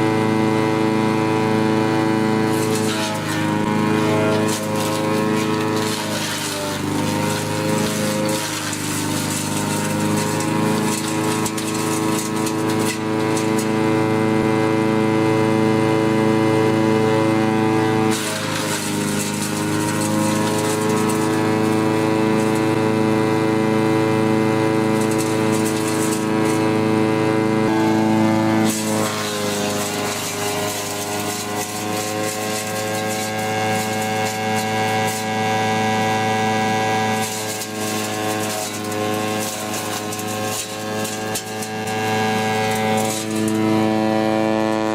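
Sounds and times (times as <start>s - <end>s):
wood chipper engine running: 0.0s - 44.9s
wood crackling and rattling: 2.5s - 13.7s, 18.1s - 22.7s, 24.9s - 26.7s, 28.6s - 35.3s, 37.1s - 43.8s.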